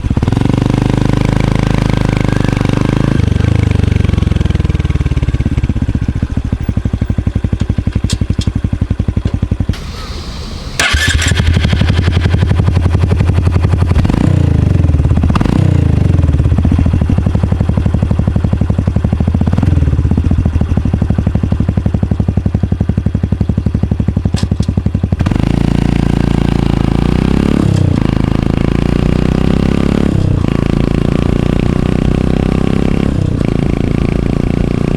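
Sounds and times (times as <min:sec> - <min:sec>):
motorcycle exhaust: 0:00.0 - 0:34.9
engine clatter: 0:03.5 - 0:26.8.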